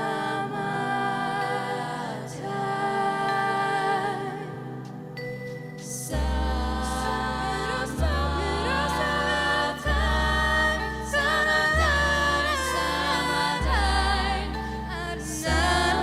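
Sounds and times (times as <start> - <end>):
young voices singing in harmony: 0.0 - 16.0
low bass notes: 6.1 - 16.0.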